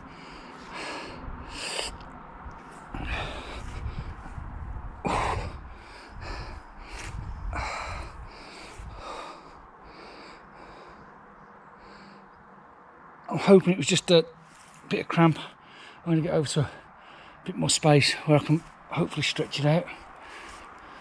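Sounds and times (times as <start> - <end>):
man breathing heavily in pain: 0.0 - 2.1, 2.7 - 12.4, 15.4 - 17.5, 19.8 - 21.0.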